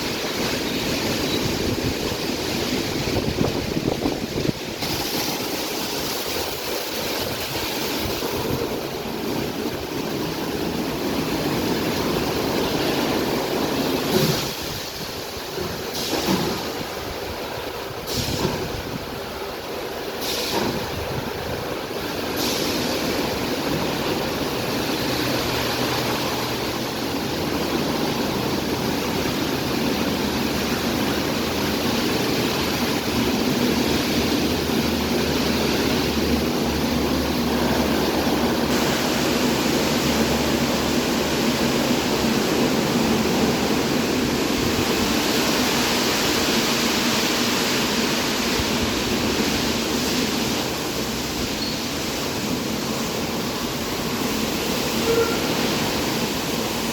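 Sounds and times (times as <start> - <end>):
spraying water: 0.0 - 56.9.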